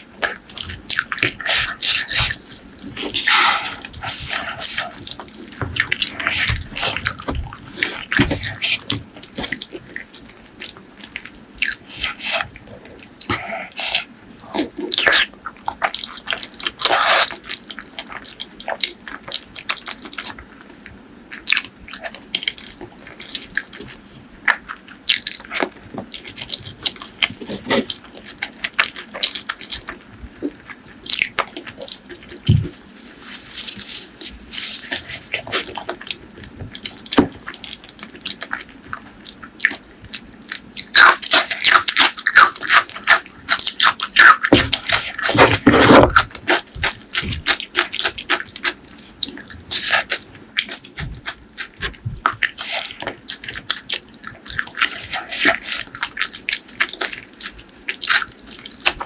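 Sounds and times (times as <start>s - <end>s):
wet chewing and lip-smacking: 33.5s - 59.0s.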